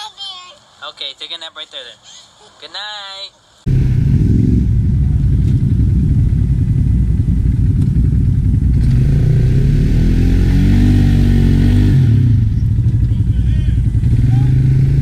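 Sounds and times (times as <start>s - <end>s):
atv engine revving: 3.7s - 15.0s.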